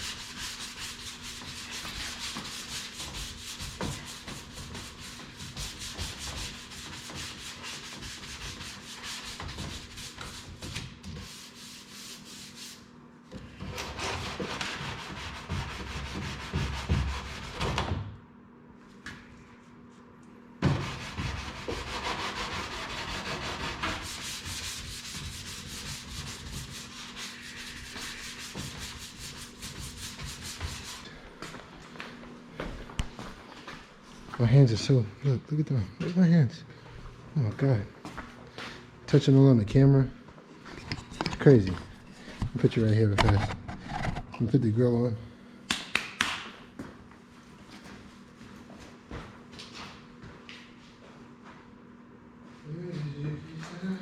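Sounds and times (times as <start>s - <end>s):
sandpaper rasping: 0.0s - 12.9s, 20.8s - 31.0s.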